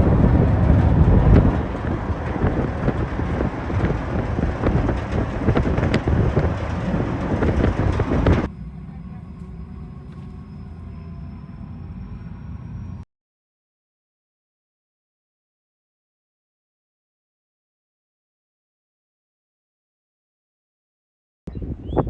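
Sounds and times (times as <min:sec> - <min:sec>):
wind buffeting microphone: 0:00.0 - 0:08.5, 0:21.5 - 0:22.0.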